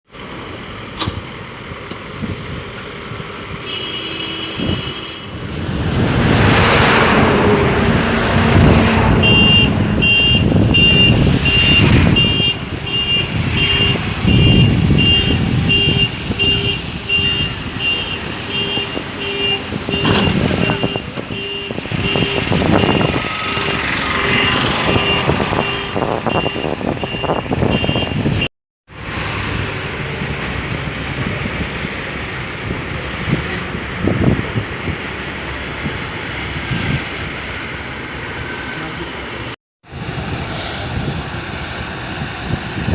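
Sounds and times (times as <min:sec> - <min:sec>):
heavy machinery engines: 0:00.1 - 0:42.9
reversing alarm beeping: 0:09.2 - 0:16.0.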